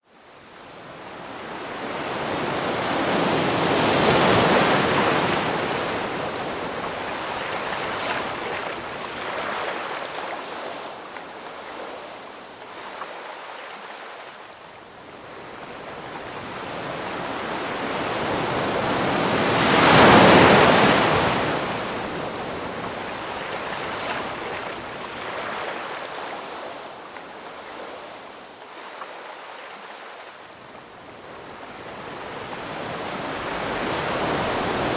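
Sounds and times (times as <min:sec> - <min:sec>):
surf washing: 0:00.4 - 0:34.9
large wave crashing: 0:19.1 - 0:22.0.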